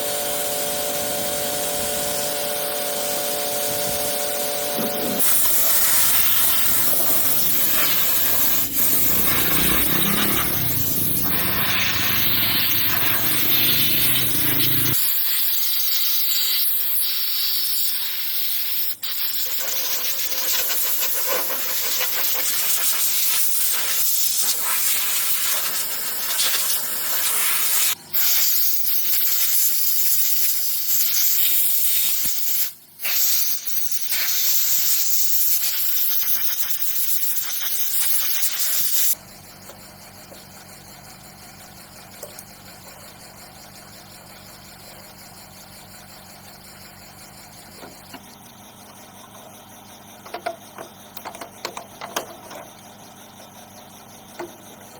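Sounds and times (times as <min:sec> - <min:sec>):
pressurized air spray hissing: 0:00.0 - 0:21.1, 0:21.7 - 0:39.2.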